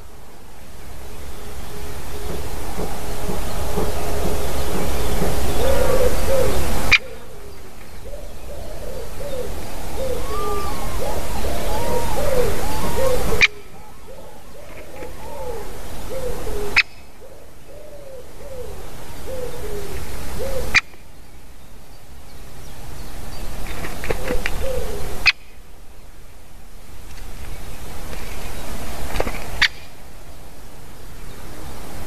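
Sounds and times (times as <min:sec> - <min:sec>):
bird calling in low notes: 0:00.9 - 0:20.8.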